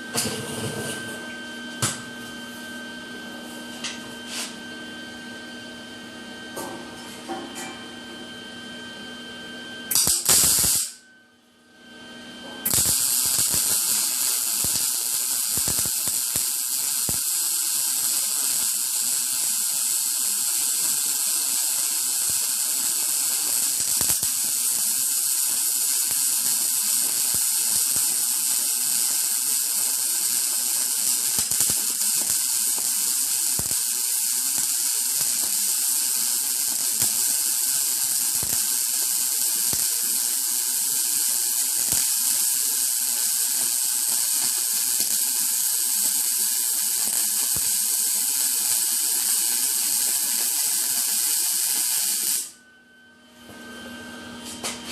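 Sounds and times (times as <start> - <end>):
welding arc crackling: 9.9 - 11.0, 12.6 - 52.6.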